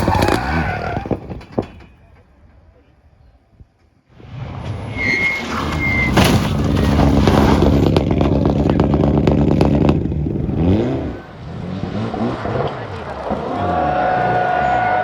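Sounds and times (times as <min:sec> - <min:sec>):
crackling exhaust pops: 0:00.0 - 0:02.0, 0:05.4 - 0:10.9
rally car engine at full throttle: 0:00.0 - 0:02.0, 0:04.2 - 0:15.0.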